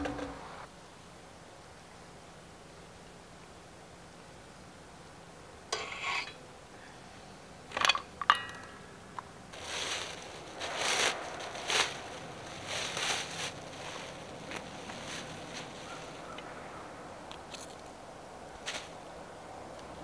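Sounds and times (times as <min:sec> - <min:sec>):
rustling and crunching: 0:09.5 - 0:16.5, 0:17.3 - 0:18.0, 0:18.6 - 0:19.0.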